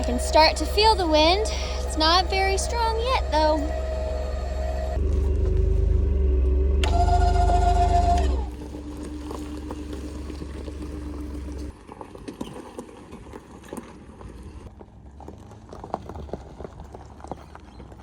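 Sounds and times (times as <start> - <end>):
low mechanical hum: 0.0 - 11.8.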